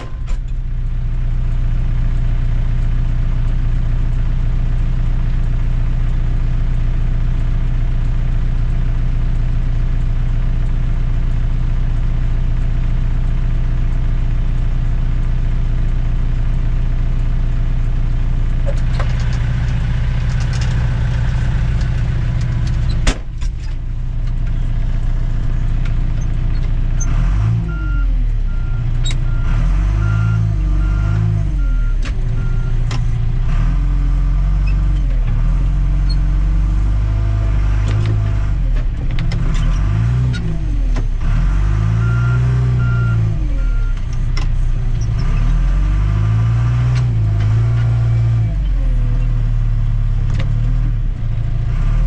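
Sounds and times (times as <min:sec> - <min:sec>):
backhoe engine working: 0:00.0 - 0:52.0
sharp knock: 0:23.0 - 0:23.3.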